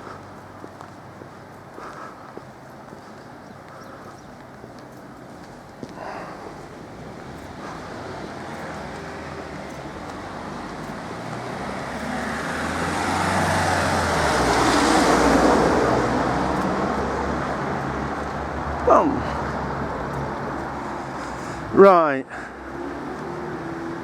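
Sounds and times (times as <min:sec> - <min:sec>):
road traffic: 0:00.0 - 0:24.0
vehicle passing close by: 0:06.0 - 0:24.0.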